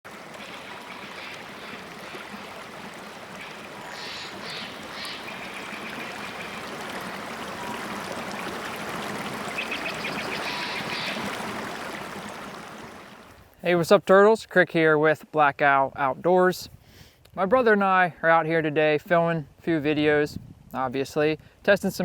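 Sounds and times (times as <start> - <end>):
stream flowing: 0.1 - 13.6.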